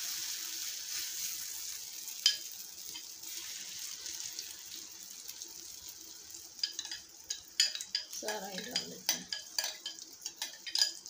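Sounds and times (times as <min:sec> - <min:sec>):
batter sizzling in hot oil: 0:00.0 - 0:11.0
spoon scraping a pan: 0:06.6 - 0:11.0.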